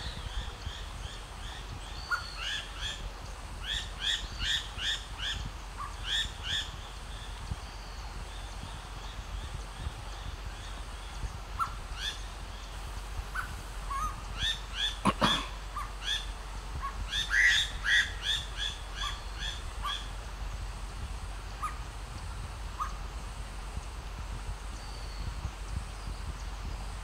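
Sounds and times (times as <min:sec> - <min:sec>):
bird whistled calls: 0:13.3 - 0:20.1.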